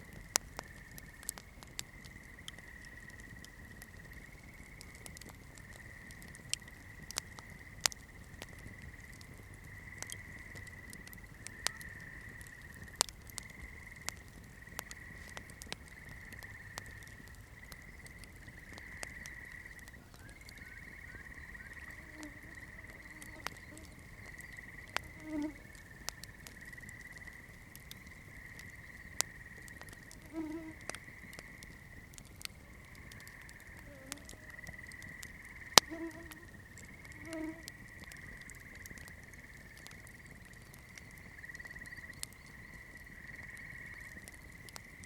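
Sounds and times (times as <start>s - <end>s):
campfire crackling and popping: 0.0s - 45.0s
low croaking calls: 0.0s - 45.0s
insect trill: 9.7s - 32.0s, 32.7s - 45.0s.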